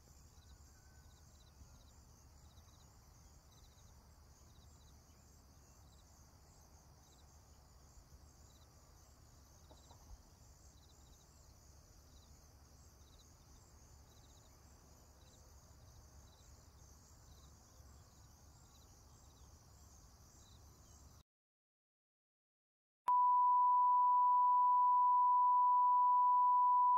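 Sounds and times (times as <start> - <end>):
insects chirping: 0.0 - 21.2.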